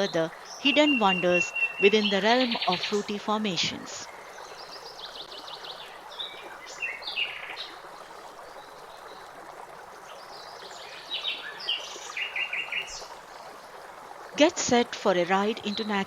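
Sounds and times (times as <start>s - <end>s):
birds chirping: 0.0s - 7.8s, 10.1s - 13.2s, 14.4s - 16.0s
running water: 0.0s - 16.0s.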